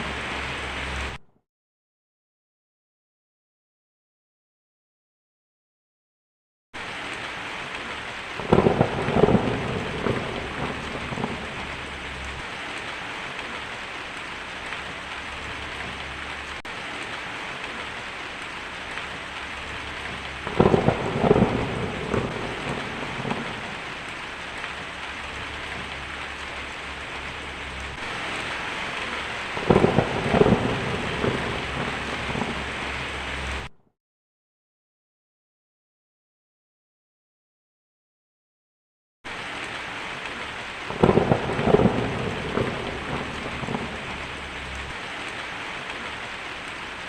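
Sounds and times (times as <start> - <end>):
heavy rain: 0.0 - 1.2, 6.8 - 33.7, 39.3 - 47.0
thunder rolling: 8.4 - 13.8, 18.8 - 33.7, 40.9 - 45.0.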